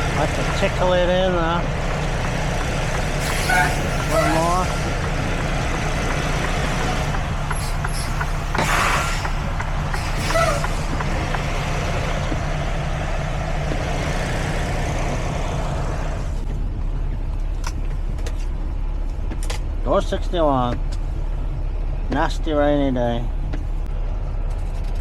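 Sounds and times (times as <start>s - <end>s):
truck diesel engine running: 0.0s - 25.0s
air brake hiss: 8.6s - 9.3s.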